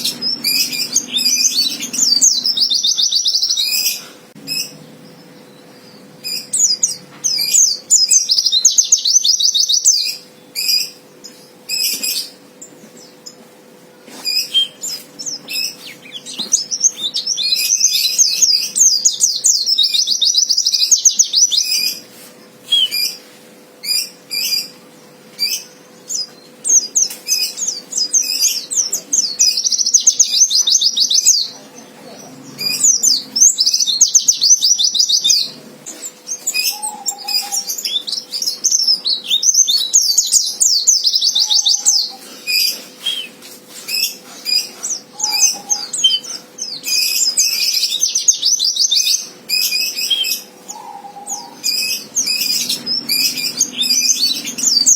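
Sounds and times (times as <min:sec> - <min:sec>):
bird high trilling: 0:00.0 - 0:04.8, 0:14.3 - 0:22.0, 0:32.4 - 0:54.9
bird sharp chirps: 0:14.2 - 0:22.0, 0:32.6 - 0:54.9.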